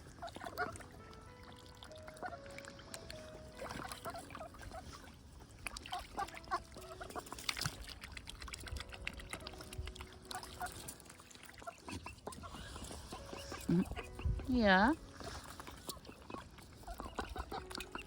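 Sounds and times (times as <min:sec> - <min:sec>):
bills dabbling in water: 0:00.0 - 0:18.0
small splashes: 0:00.1 - 0:14.1
soft murmuring bird calls: 0:10.3 - 0:18.0.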